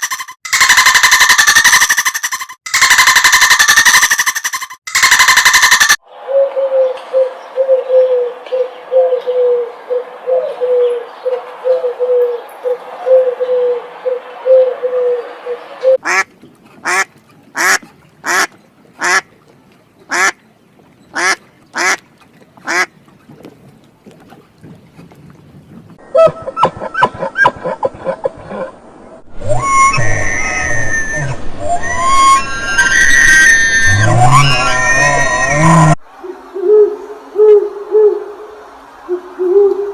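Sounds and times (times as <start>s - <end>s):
ducks quacking: 16.0s - 19.3s, 20.1s - 20.4s, 21.1s - 23.0s.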